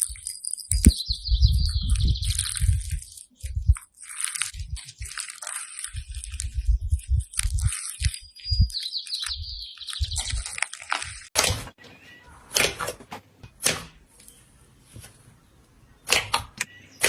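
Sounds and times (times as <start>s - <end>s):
crunchy slime crackling and squishing: 0.0s - 11.5s
soft low thumps: 0.7s - 3.8s, 4.5s - 5.2s, 6.0s - 10.6s.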